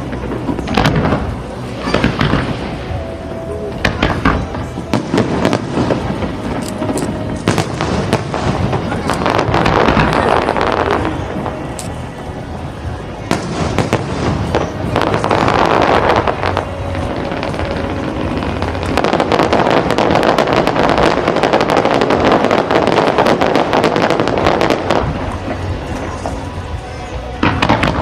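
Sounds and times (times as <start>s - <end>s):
fireworks bangs and crackling: 0.0s - 28.0s.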